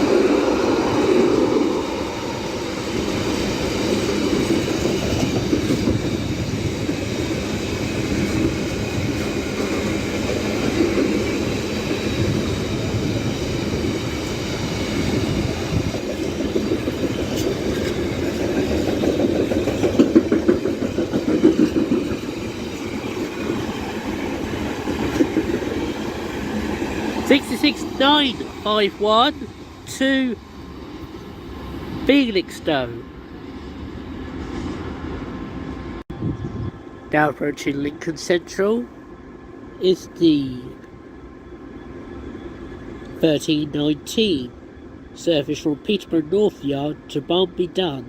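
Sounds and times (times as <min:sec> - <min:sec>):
freight train wagons rumbling: 0:00.0 - 0:48.0
wheels clacking over rail joints: 0:15.9 - 0:27.9.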